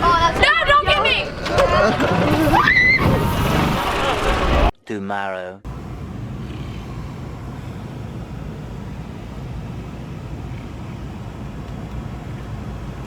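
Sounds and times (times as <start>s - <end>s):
vehicle cabin rumble and hiss: 5.7s - 13.0s.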